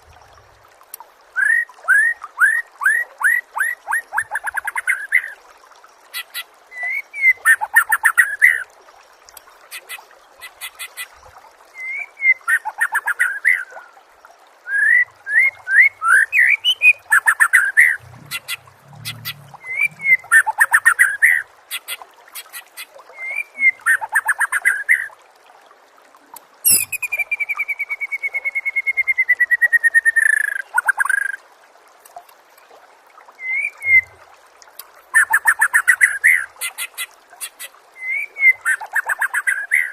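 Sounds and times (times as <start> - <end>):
songbird whistling and chirping: 14.7 - 21.4, 23.2 - 24.8, 26.7 - 31.4, 33.4 - 34.1, 38.0 - 39.9.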